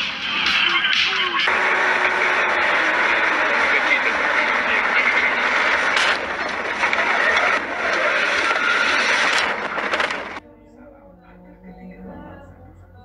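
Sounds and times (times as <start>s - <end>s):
moving vehicle rushing noise: 0.0s - 10.4s.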